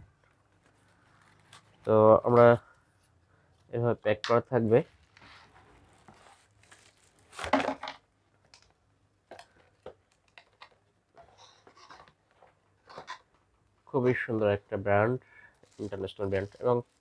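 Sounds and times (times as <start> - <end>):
packaging crinkling and rustling: 5.8 - 8.7, 15.6 - 17.0.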